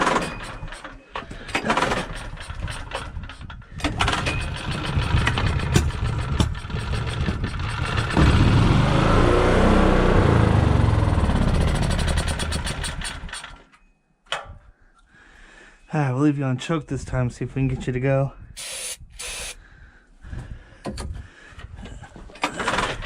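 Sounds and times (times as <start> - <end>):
generator engine sputtering and running: 0.0 - 13.7.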